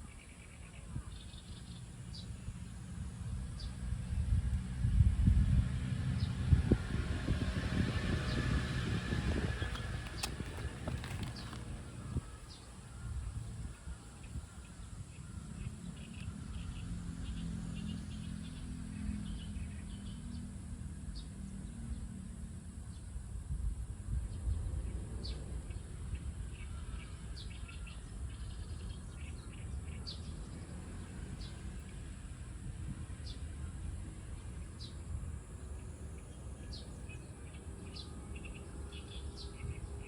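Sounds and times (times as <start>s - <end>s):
steady low rumble: 0.9s - 17.4s.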